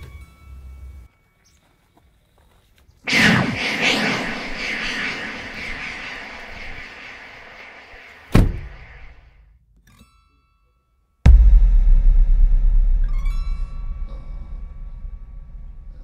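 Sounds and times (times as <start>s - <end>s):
wash of noise: 3.1s - 9.3s
loud deep rumbling boom: 11.3s - 16.0s.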